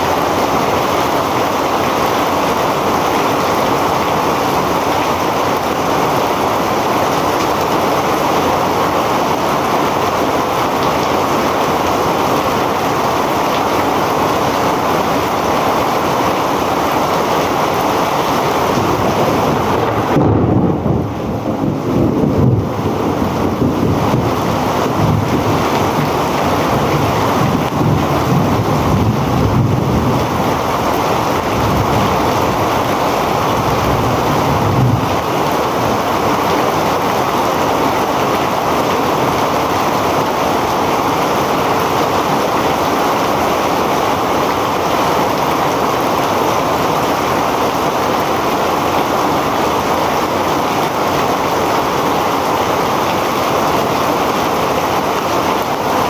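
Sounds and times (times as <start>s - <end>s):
heavy rain: 0.0s - 56.0s
low rumbling: 18.3s - 36.3s.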